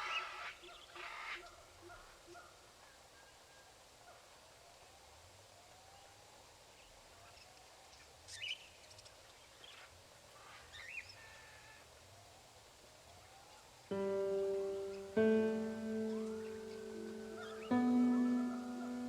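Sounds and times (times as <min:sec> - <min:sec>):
soft hiss: 0:03.8 - 0:19.0.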